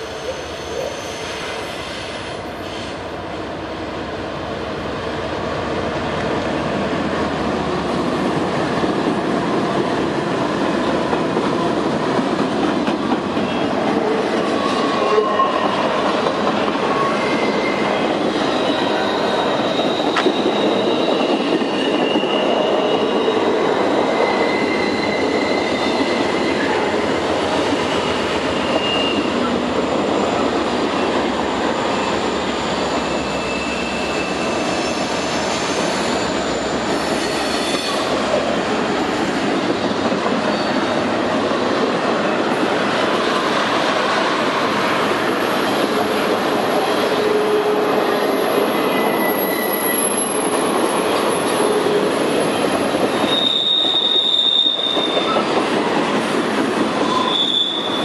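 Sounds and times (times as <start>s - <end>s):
freight train rumbling past: 0.0s - 58.0s
high-pitched wheel squeals: 16.9s - 26.9s, 27.8s - 29.4s, 32.1s - 38.0s, 47.2s - 55.4s, 57.0s - 58.0s.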